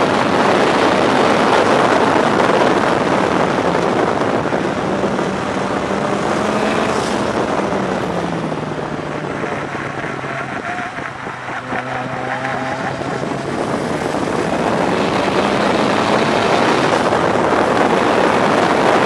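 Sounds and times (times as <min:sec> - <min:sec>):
car engine accelerating: 0:00.0 - 0:19.0
wind and road noise: 0:00.0 - 0:19.0.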